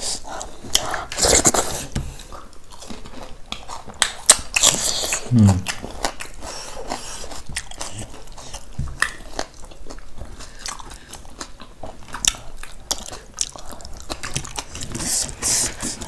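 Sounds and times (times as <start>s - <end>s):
chewing and mouth noises: 0.0s - 16.0s.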